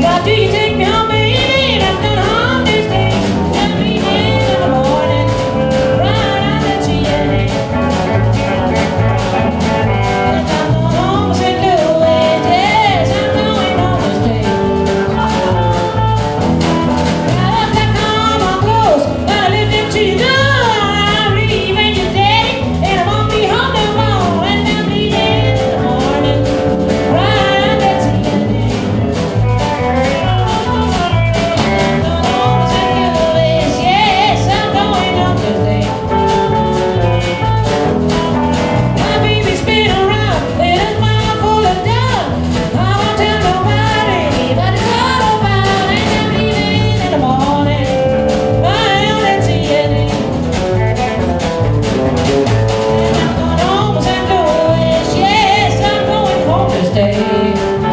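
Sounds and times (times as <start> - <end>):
live band music: 0.0 - 57.9
wordless sung melody: 0.0 - 57.9.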